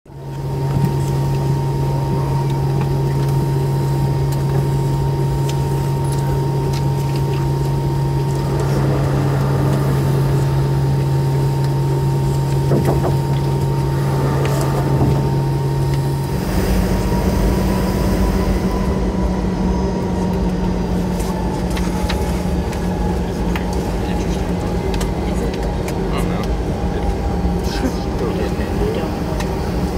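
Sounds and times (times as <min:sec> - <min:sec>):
airliner cabin hum: 0:00.1 - 0:29.9
deep engine rumble: 0:00.1 - 0:29.9.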